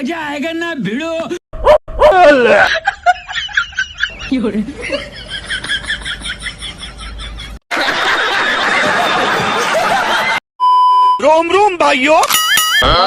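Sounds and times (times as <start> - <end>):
snickering laughter: 4.8 - 10.4
short steady beep: 10.6 - 11.2.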